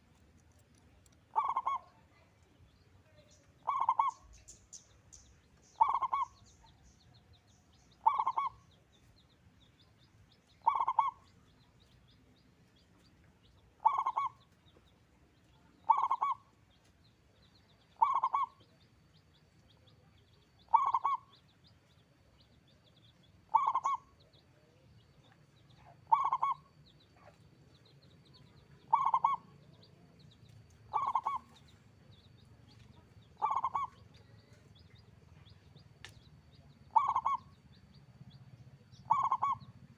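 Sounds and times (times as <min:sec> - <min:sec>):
faint high chirps: 0:00.5 - 0:39.9
dove cooing: 0:01.3 - 0:01.9, 0:03.6 - 0:04.3, 0:05.8 - 0:06.4, 0:08.0 - 0:08.6, 0:10.6 - 0:11.2, 0:13.8 - 0:14.4, 0:15.9 - 0:16.4, 0:18.0 - 0:18.6, 0:20.7 - 0:21.3, 0:23.5 - 0:24.1, 0:25.9 - 0:27.3, 0:28.9 - 0:29.5, 0:30.9 - 0:31.6, 0:33.4 - 0:34.0, 0:36.9 - 0:37.5, 0:39.0 - 0:39.7.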